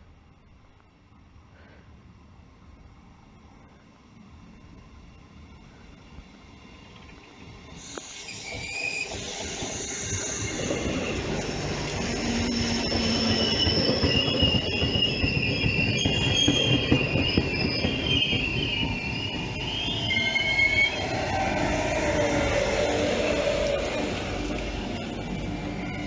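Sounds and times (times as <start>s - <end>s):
train rumble: 2.2s - 26.0s
train wheels and brakes squealing: 7.5s - 26.0s.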